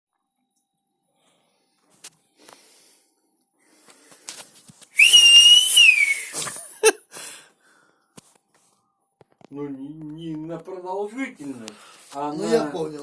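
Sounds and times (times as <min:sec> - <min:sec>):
person whistling high note: 0:05.0 - 0:06.5.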